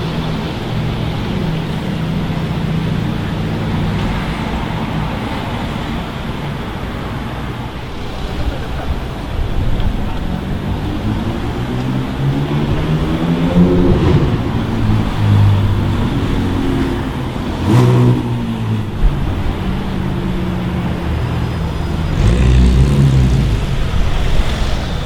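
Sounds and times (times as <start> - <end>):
car engine revving: 9.9 - 25.0.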